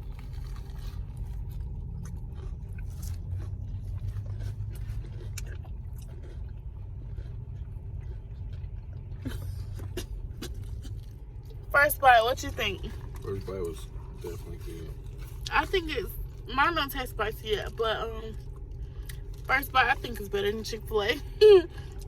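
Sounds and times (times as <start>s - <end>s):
crunchy bites and chewing: 0.0s - 11.7s, 12.8s - 16.5s
steady low rumble: 0.0s - 22.0s.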